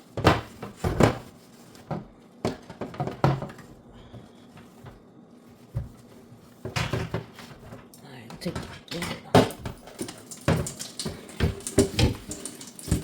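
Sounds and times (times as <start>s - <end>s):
refrigerator parts knocking: 0.2s - 3.7s, 6.6s - 7.6s.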